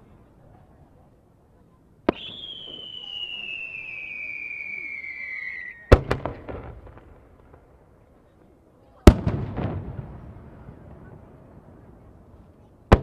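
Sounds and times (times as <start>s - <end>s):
falling firework whistle: 2.1s - 6.1s
firework crackling: 2.1s - 7.8s.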